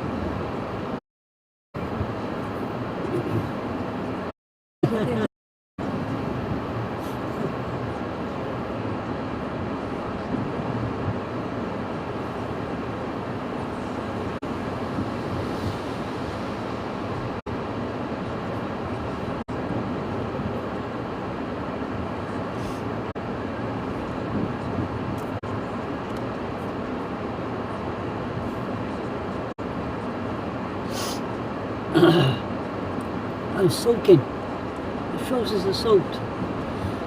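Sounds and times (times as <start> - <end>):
storm wind: 5.8 - 37.0.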